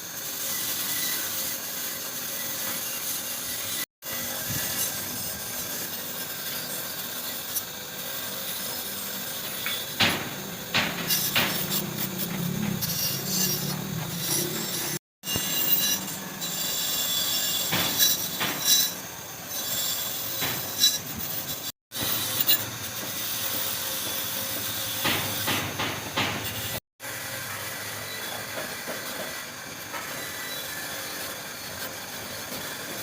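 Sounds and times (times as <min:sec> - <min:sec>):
scraping and rubbing on metal: 0:00.4 - 0:26.8
high squeals: 0:09.2 - 0:22.8
sharp knocks: 0:09.6 - 0:14.2, 0:24.5 - 0:26.8.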